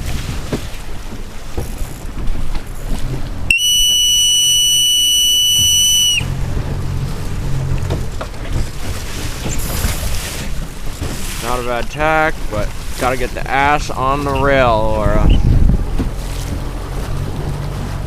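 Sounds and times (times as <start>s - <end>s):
wind buffeting microphone: 0.0s - 3.6s, 5.3s - 18.0s
water splashing: 0.0s - 18.0s
long whistle blast: 3.5s - 6.4s.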